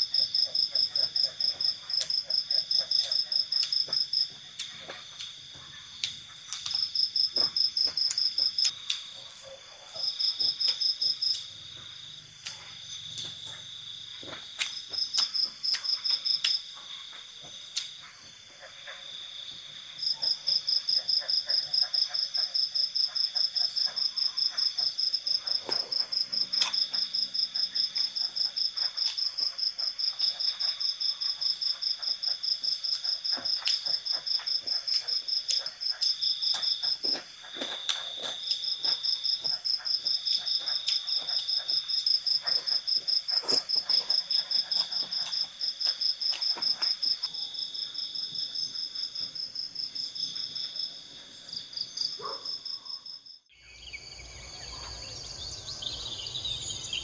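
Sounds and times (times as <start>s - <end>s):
insects continuous chirping: 0.0s - 57.0s
insects pulsed trill: 53.6s - 57.0s.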